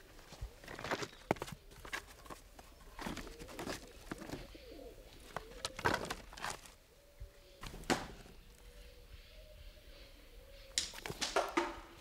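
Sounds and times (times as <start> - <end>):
bird cooing: 2.9 - 11.2.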